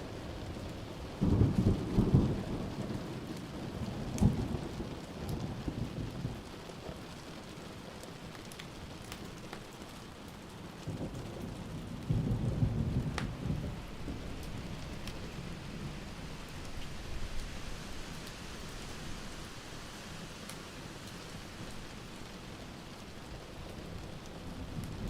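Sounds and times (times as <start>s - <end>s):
steady rain: 0.0s - 25.0s
thunder clap: 10.9s - 16.0s
thunder rumble: 10.9s - 18.0s.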